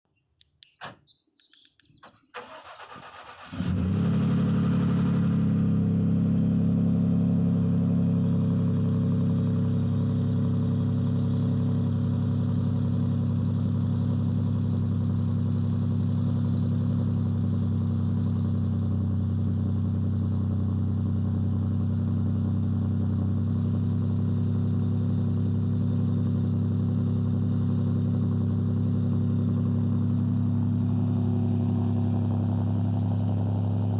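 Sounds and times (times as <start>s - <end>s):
engine cranking: 2.0s - 3.8s
engine idling loudly: 8.2s - 33.9s.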